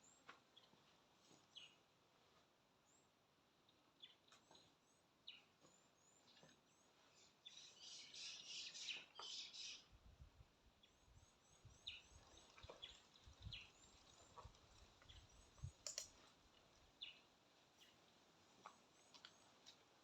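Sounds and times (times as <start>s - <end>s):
faint birds chirping: 0.0s - 20.0s
sharp clicks: 15.7s - 16.2s.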